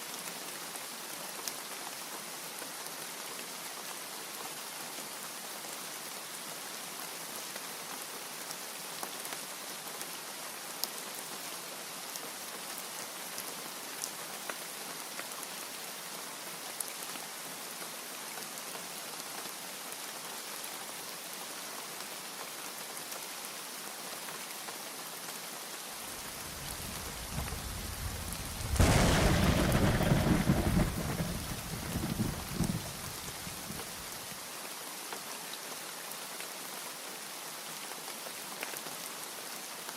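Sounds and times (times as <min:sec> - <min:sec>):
heavy rain: 0:00.0 - 0:39.9
thunder rumble and clap: 0:26.3 - 0:33.9.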